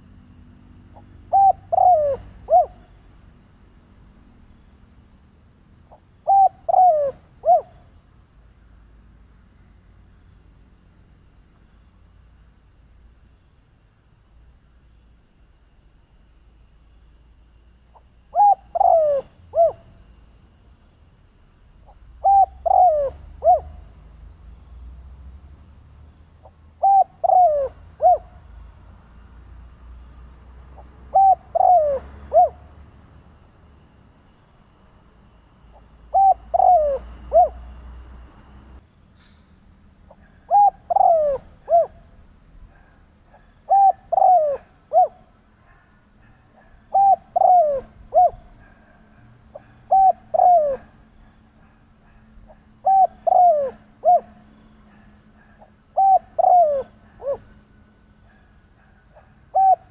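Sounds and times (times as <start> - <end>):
dove cooing: 0.9 - 2.9, 5.9 - 7.9, 18.3 - 20.0, 21.9 - 23.9, 26.8 - 28.4, 30.8 - 32.7, 35.7 - 37.8, 40.1 - 42.1, 42.7 - 57.6, 58.3 - 59.9.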